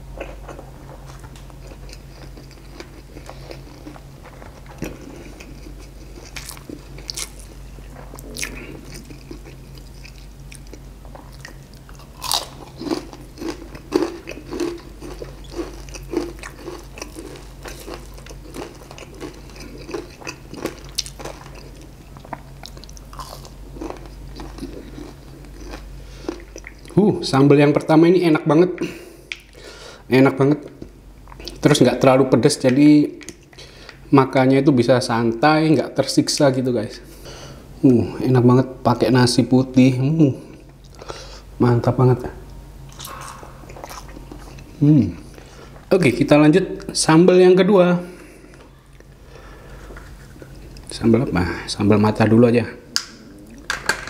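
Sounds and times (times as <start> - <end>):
chewing crispy fried chicken: 0.2 - 27.0.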